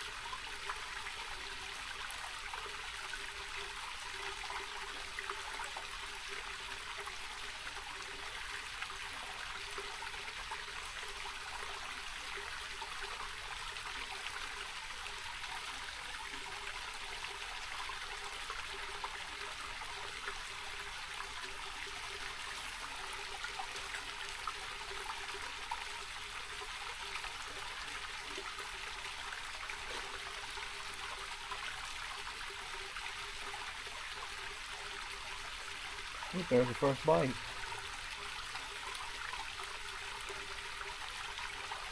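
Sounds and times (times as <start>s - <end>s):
creek water over stones: 0.0s - 41.9s.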